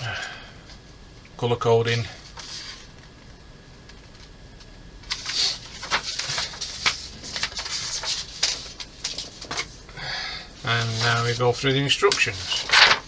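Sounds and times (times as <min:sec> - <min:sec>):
paper rustling and crinkling: 0:02.2 - 0:03.1, 0:05.1 - 0:09.9, 0:10.6 - 0:13.0.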